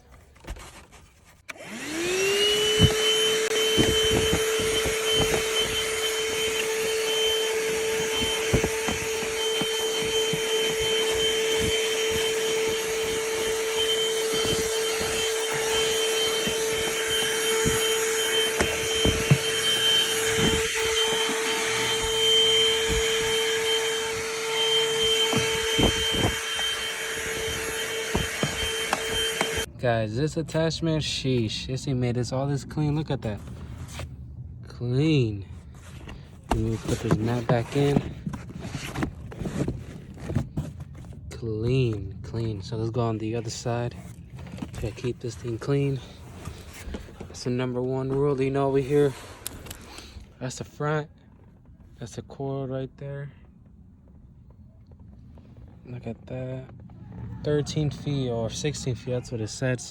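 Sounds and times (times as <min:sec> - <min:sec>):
handheld vacuum motor whine: 0:01.4 - 0:29.7, 0:36.0 - 0:41.1.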